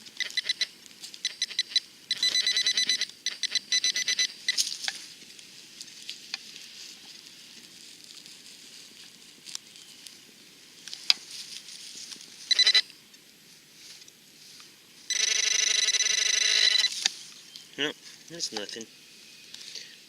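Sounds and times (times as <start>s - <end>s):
warbling electronic detector beep: 0.2s - 4.6s, 12.5s - 12.8s, 15.1s - 17.0s.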